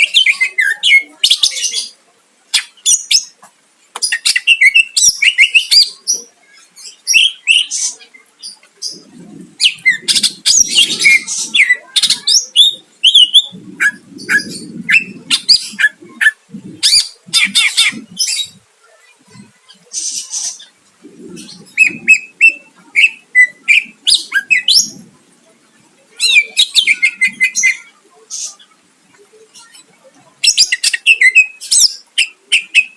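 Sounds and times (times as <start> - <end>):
bird singing chirps and whistles: 21.4 - 25.0.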